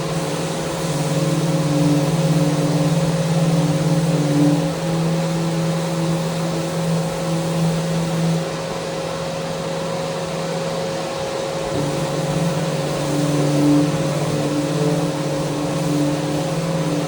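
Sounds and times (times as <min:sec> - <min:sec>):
abrasive hissing on rail: 0:00.0 - 0:08.5, 0:11.7 - 0:17.0
power sander motor hum: 0:11.7 - 0:17.0.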